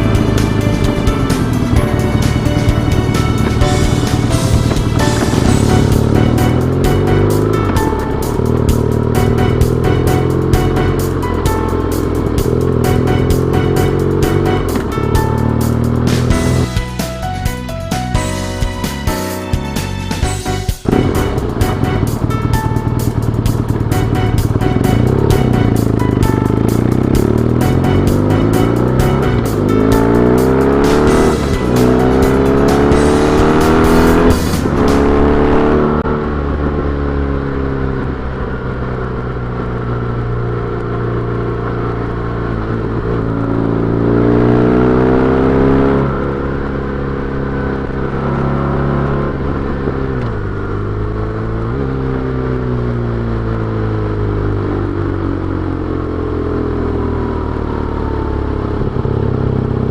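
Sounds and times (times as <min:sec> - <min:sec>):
motorcycle engine revving through gears: 0:00.0 - 0:16.7, 0:20.8 - 0:59.9.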